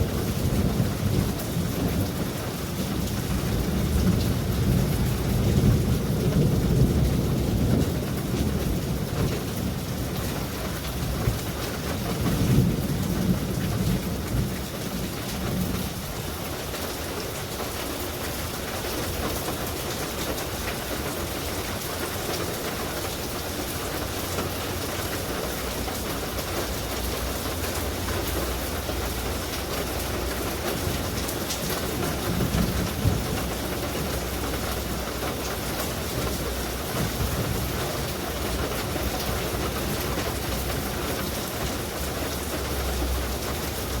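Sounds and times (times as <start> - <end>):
heavy rain falling: 0.0 - 44.0
thunder rolling: 27.8 - 40.9.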